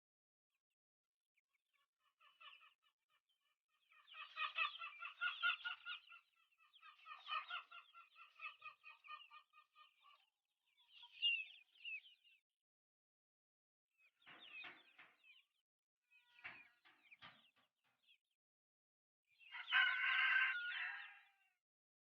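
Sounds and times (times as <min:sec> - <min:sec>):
chickens clucking: 0:03.8 - 0:12.2, 0:14.2 - 0:15.6, 0:16.2 - 0:18.2, 0:19.4 - 0:21.1.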